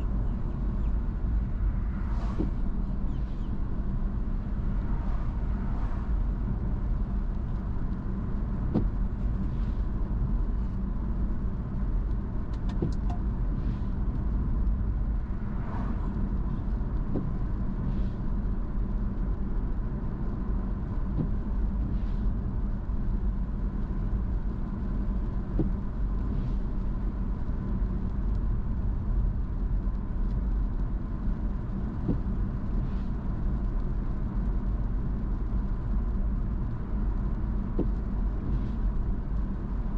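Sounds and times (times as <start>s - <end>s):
car engine and tyre road noise: 0.0s - 39.9s
light ticks: 28.0s - 28.5s.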